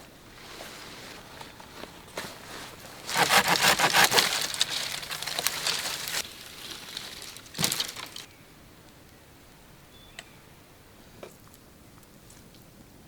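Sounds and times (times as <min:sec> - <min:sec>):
dry wood snapping and crackling: 0:02.9 - 0:08.3.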